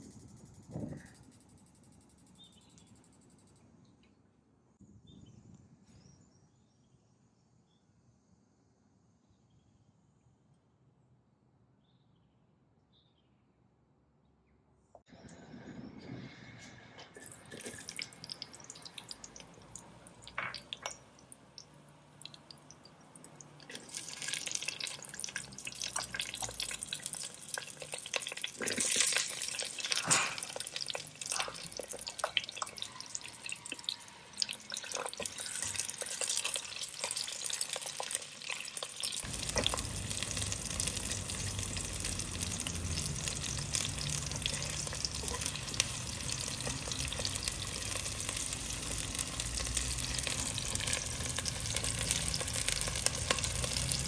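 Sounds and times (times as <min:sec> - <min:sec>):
food sizzling in hot oil: 0:17.2 - 0:54.0.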